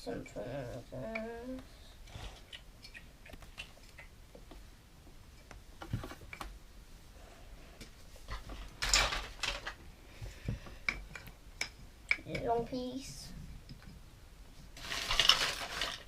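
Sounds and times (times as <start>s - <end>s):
rustling clatter of pieces: 8.3s - 9.8s, 14.8s - 16.0s.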